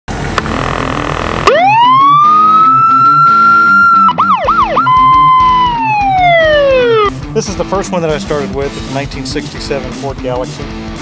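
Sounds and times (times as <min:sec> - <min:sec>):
guitar music: 0:00.4 - 0:11.0
police siren wailing and yelping: 0:01.4 - 0:07.1.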